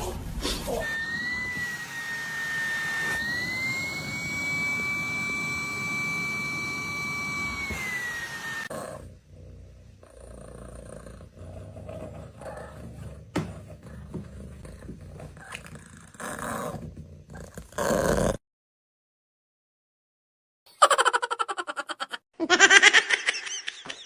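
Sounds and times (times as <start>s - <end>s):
animal growling: 8.7s - 18.4s.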